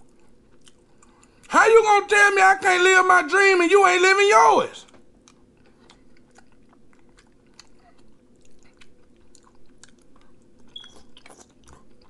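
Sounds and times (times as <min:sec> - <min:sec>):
person chewing food: 0:00.0 - 0:01.5, 0:04.8 - 0:12.0.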